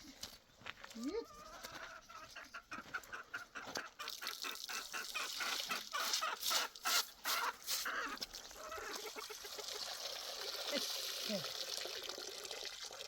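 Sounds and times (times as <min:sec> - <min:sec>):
poultry calling: 0:01.0 - 0:09.6.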